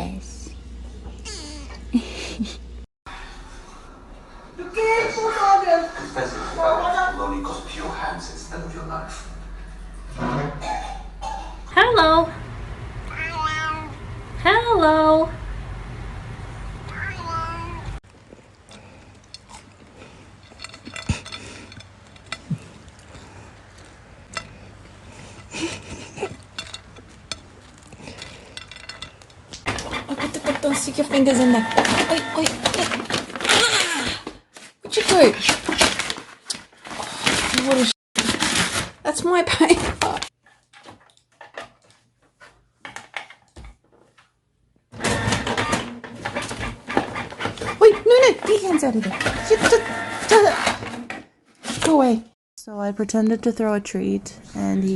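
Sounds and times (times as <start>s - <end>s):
paper shredder motor running: 31.2s - 33.7s, 49.2s - 50.8s
paper rustling: 34.5s - 39.1s.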